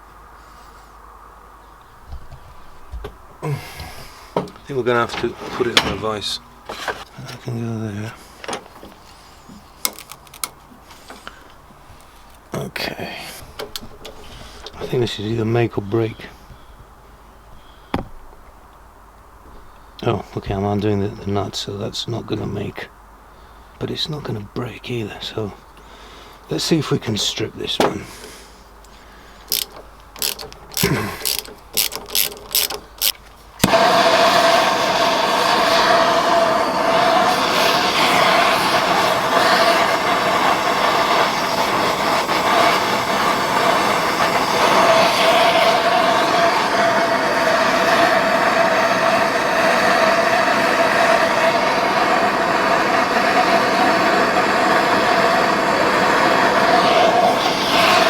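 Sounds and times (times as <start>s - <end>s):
heating tool blowing hiss: 3.4s - 6.9s, 28.0s - 58.0s
sharp metallic clicks: 29.5s - 33.4s.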